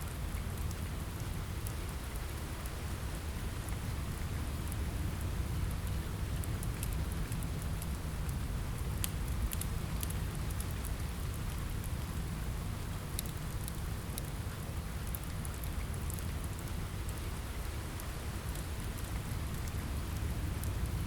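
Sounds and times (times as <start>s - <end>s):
steady rain: 0.0s - 21.0s
wood fire crackling: 4.3s - 21.0s.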